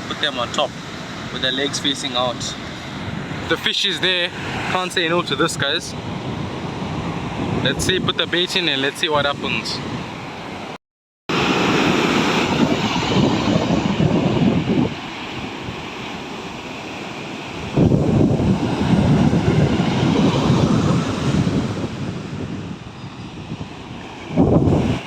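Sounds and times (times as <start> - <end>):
wind buffeting microphone: 0.8 - 10.7, 11.6 - 25.0
breaking surf: 11.3 - 25.0.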